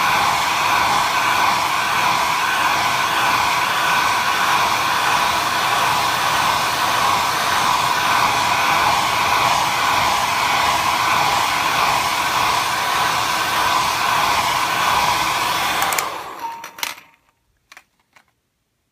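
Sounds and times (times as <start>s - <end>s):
hair dryer blowing: 0.0s - 17.0s.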